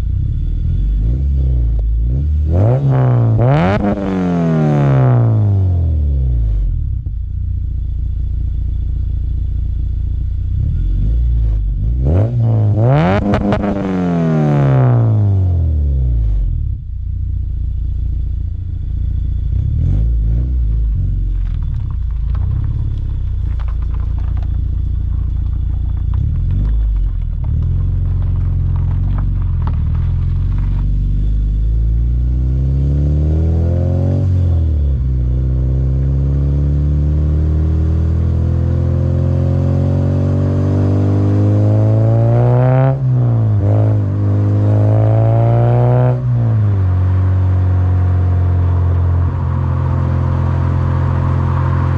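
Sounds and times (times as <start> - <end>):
car exhaust revving: 0.0 - 51.9.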